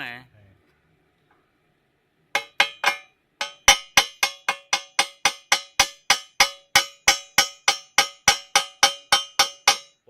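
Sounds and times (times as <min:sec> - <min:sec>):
hammer striking steel: 0:02.4 - 0:10.0.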